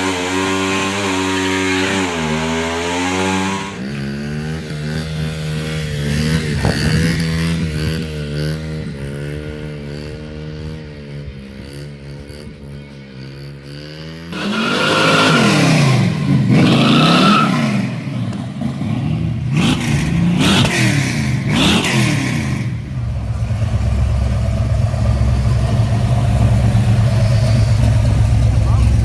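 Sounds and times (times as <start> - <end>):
truck engine revving: 0.0 - 29.0
truck engine idling: 22.9 - 29.0.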